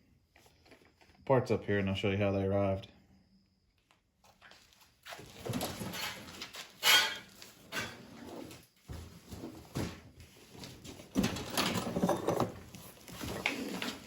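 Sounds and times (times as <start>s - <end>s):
cardboard boxes rustling: 8.4s - 14.0s.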